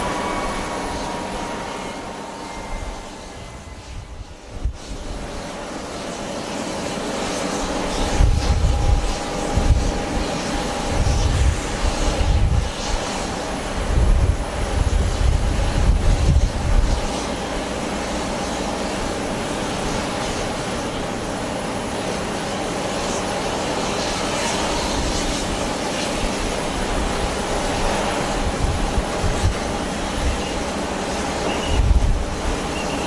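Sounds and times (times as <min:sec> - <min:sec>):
wind buffeting microphone: 0:00.0 - 0:05.7, 0:07.9 - 0:17.4, 0:24.8 - 0:32.9
jet engines whining: 0:00.0 - 0:33.0.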